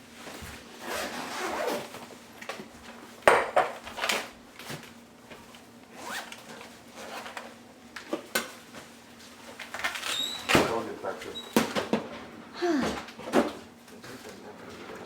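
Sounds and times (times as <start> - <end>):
zip being pulled: 0.8 - 1.9, 6.0 - 6.3.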